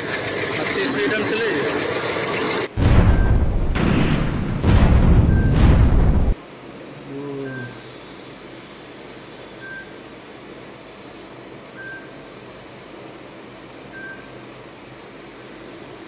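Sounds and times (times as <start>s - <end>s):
rumbling hiss: 2.7s - 16.0s
high electronic beep: 3.1s - 3.5s, 5.2s - 5.6s.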